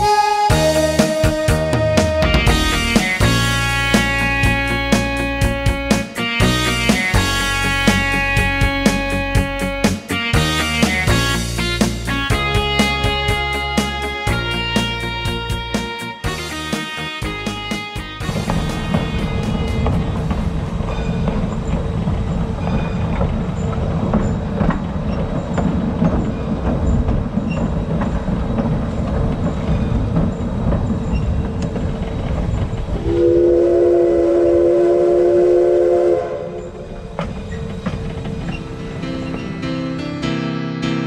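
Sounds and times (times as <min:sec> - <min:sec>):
locomotive whistle: 0:00.0 - 0:21.8, 0:33.0 - 0:37.6
train wheels rumbling and clicking: 0:00.0 - 0:34.6, 0:35.2 - 0:40.4
steady tone: 0:00.1 - 0:05.8, 0:32.9 - 0:39.7.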